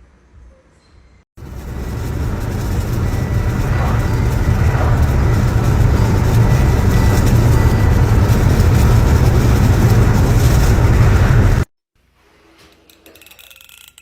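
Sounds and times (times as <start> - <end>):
loud low rumble with hiss: 1.4 - 11.7.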